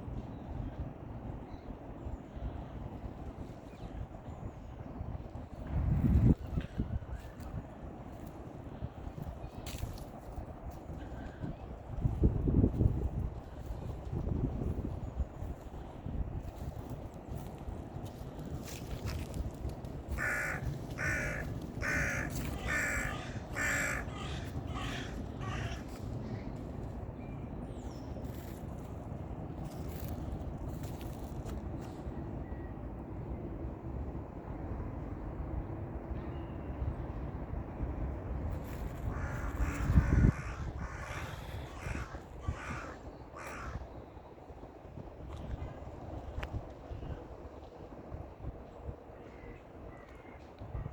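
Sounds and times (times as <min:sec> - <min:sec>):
steady low rumble: 0:00.0 - 0:36.1, 0:36.9 - 0:50.9
bird harsh calls: 0:20.2 - 0:26.4.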